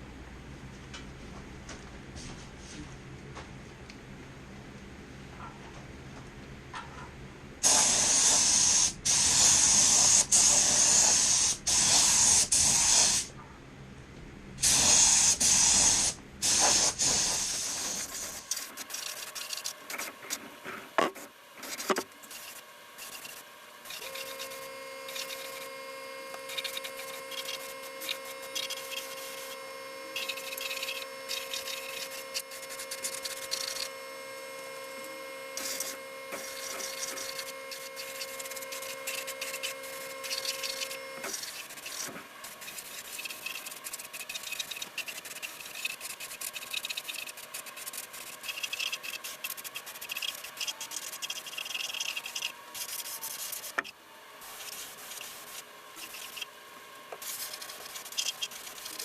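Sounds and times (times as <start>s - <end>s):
spray can hissing: 7.6s - 13.3s, 14.6s - 19.7s, 57.2s - 59.0s
quiet steady hum: 13.2s - 59.0s.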